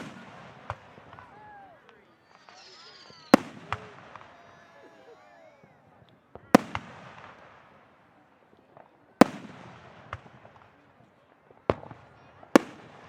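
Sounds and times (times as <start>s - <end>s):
firework shells bursting: 0.0s - 7.9s
small firework pops: 0.0s - 13.0s.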